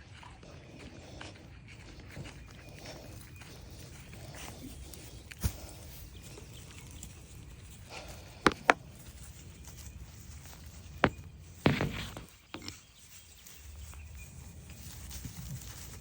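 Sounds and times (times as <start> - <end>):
low outdoor background: 0.0 - 16.0
scraping rustle: 8.0 - 16.0
sharp knocks: 8.5 - 8.8.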